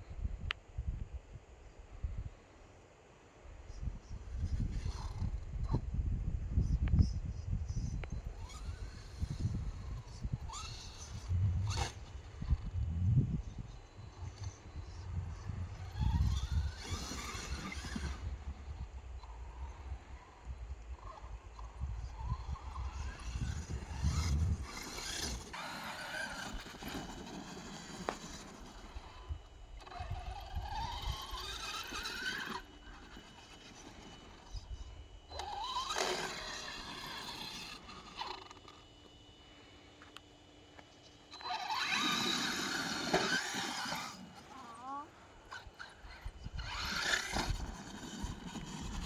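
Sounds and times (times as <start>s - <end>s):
rc truck motors whining: 3.5s - 49.0s.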